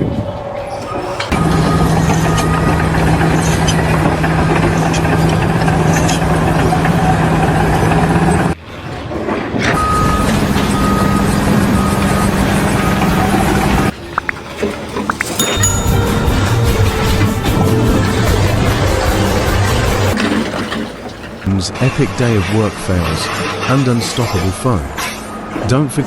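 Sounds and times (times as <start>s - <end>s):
reversing alarm beeps: 0.7s - 3.4s, 9.8s - 13.9s
heavy truck engine running: 9.9s - 13.9s, 15.8s - 21.4s.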